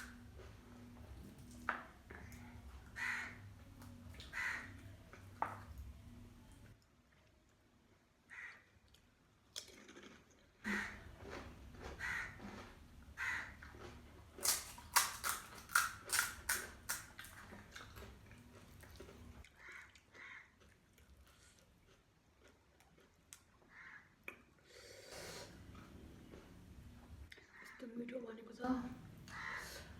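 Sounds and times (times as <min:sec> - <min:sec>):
crispy food chewed: 0:08.8 - 0:23.7.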